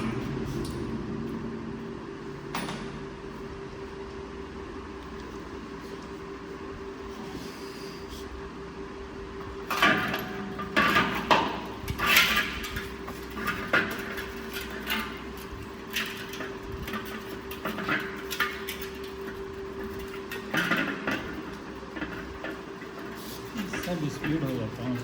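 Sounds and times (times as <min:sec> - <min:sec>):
steady hum: 0:00.0 - 0:25.0
metal tools clinking and scraping: 0:22.9 - 0:25.0.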